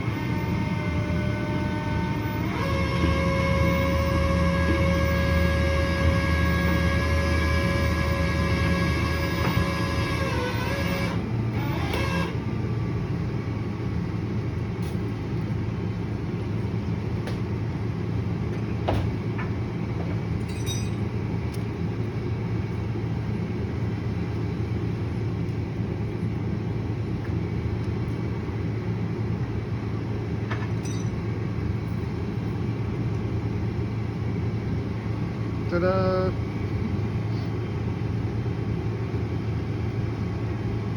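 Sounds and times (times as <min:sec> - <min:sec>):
truck engine rumbling: 0:00.0 - 0:40.9
light metal clanks: 0:20.4 - 0:21.1.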